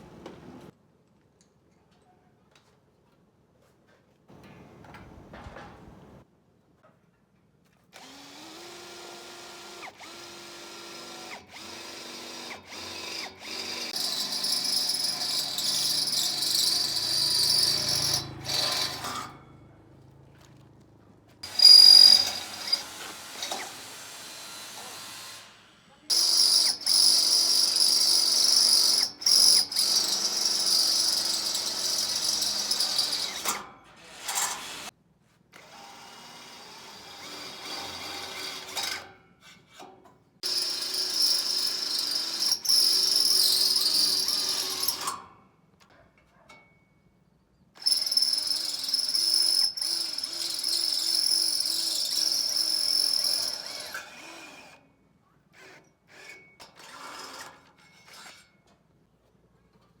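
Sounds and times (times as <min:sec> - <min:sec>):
power tool whining: 0:08.0 - 0:19.4, 0:21.4 - 0:34.9, 0:40.4 - 0:45.2.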